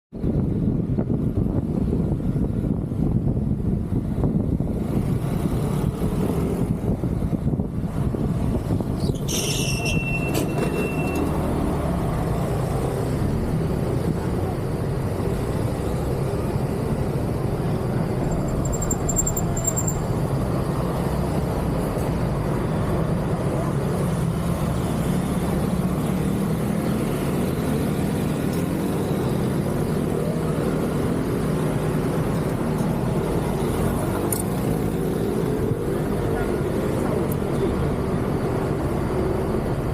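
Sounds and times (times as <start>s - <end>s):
road traffic rumble: 0.1s - 39.9s
high-pitched squeal: 9.0s - 11.7s, 18.2s - 20.2s.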